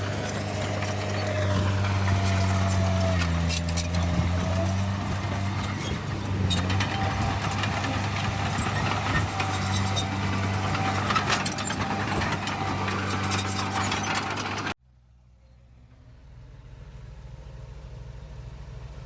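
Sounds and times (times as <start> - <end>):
heavy diesel engine running: 0.0 - 14.8
sharp knocks and rattles: 0.0 - 14.8.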